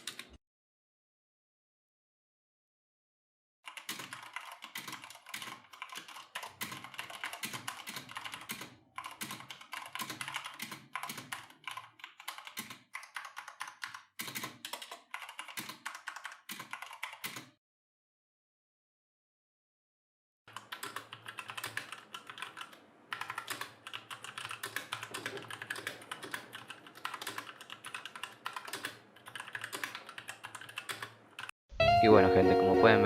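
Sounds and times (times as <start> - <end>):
mechanical keyboard typing: 0.0 - 0.4, 3.7 - 17.6, 20.5 - 31.5.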